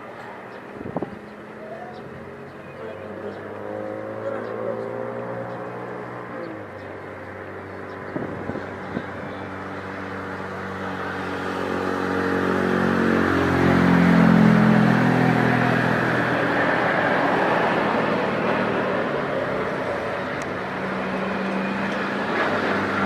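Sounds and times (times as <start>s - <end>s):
jet airliner passing by: 0.0s - 23.0s.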